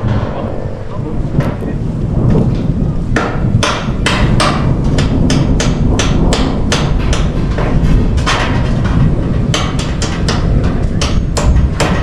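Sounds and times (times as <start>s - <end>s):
steady low rumble: 0.0s - 12.0s
hammer strikes: 3.2s - 12.0s.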